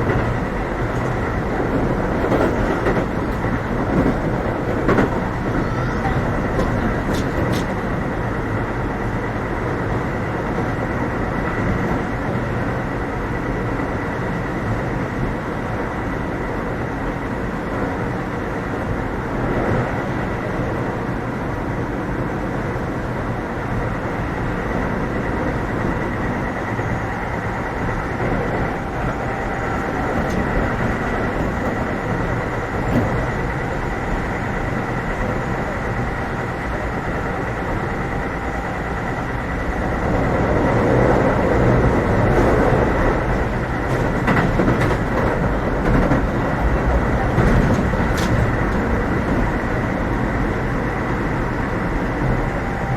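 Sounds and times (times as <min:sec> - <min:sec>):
train wheels rumbling on rail: 0:00.0 - 0:52.9
steady high tone: 0:24.0 - 0:43.8, 0:48.9 - 0:52.9.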